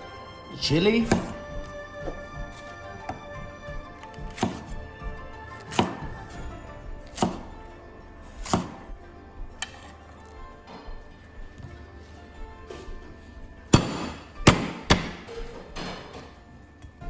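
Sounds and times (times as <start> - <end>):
knife chopping on cutting board: 1.0 - 7.7, 8.3 - 10.1, 13.7 - 16.3.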